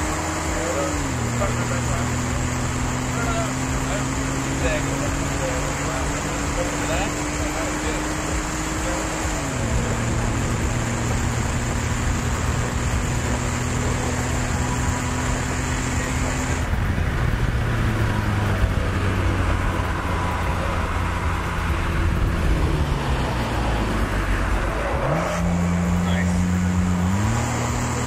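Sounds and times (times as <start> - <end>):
car engine running: 0.0 - 28.0.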